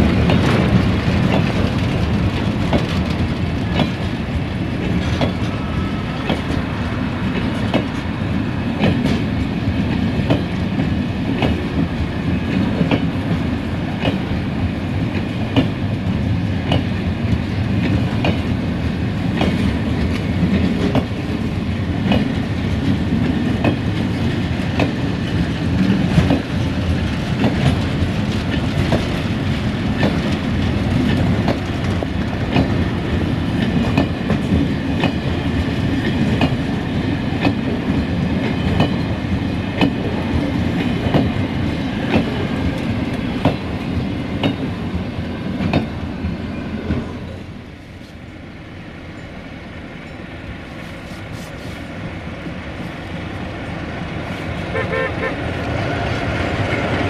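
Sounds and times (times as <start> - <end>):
wheels clacking over rail joints: 0.0 - 5.6, 22.0 - 36.7
freight wagons rumbling on rails: 0.0 - 48.0.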